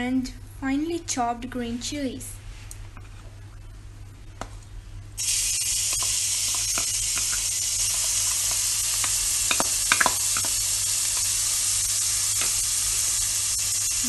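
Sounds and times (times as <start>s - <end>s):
food sizzling in oil: 5.2s - 14.0s.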